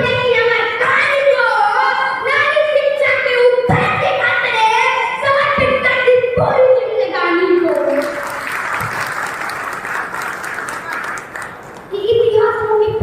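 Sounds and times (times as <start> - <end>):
child chanting in sung notes: 0.0 - 7.9.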